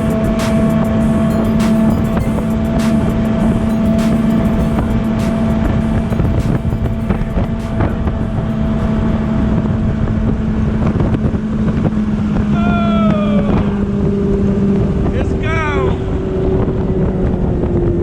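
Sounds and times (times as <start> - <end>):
motorboat engine running: 0.0 - 12.4.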